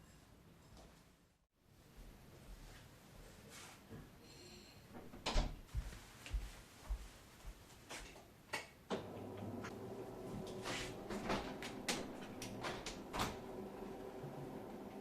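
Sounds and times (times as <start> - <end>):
steady even hum: 8.9 - 15.0.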